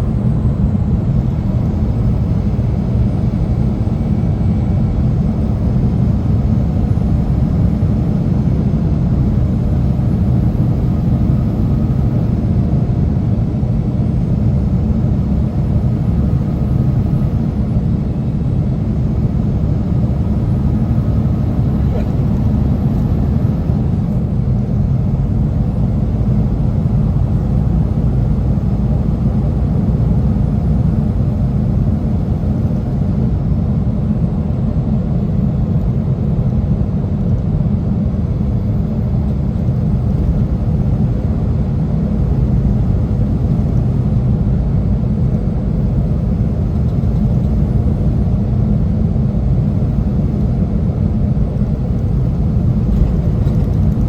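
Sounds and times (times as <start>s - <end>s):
semi truck engine and road noise: 0.0s - 54.0s.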